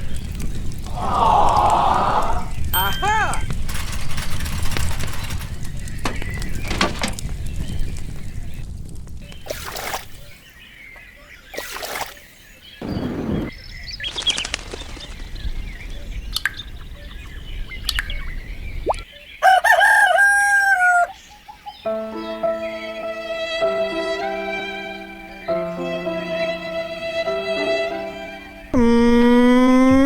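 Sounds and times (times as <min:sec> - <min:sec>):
rooster crowing: 0:00.9 - 0:03.4, 0:19.4 - 0:21.2
whooshing flapping sounds: 0:12.8 - 0:16.1
string music: 0:21.8 - 0:28.8.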